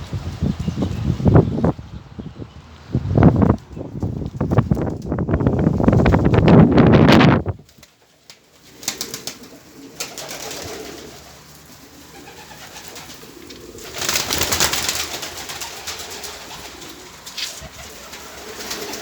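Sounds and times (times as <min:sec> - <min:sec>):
rustling noise: 0:02.8 - 0:08.8, 0:10.7 - 0:19.0
pigeons cooing: 0:08.6 - 0:19.0.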